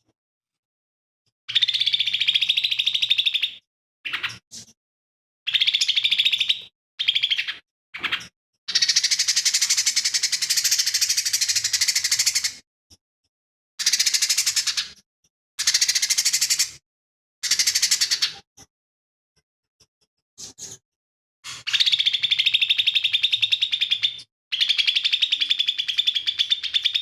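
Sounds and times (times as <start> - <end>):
bird singing rattling phrases: 1.5 - 4.4, 5.5 - 12.6, 13.8 - 15.0, 15.6 - 16.8, 17.4 - 18.4, 21.5 - 27.0.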